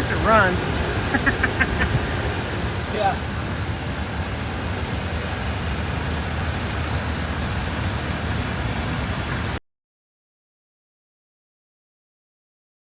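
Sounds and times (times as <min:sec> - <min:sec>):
truck engine running: 0:00.0 - 0:09.6.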